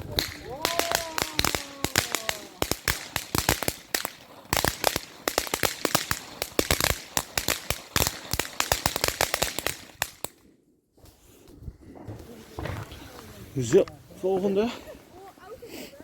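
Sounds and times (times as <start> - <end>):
firework bangs and crackles: 0.0 - 10.4.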